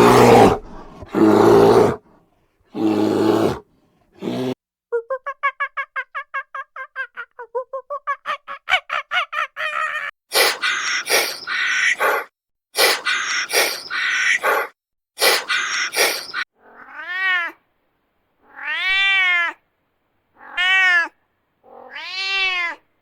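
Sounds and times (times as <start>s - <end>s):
animal roar-like call: 0.0s - 2.0s, 2.7s - 3.6s, 4.2s - 4.6s
animal chirping calls: 10.4s - 16.4s
harsh meow-like calls: 16.2s - 17.6s, 18.4s - 19.6s, 20.4s - 22.9s.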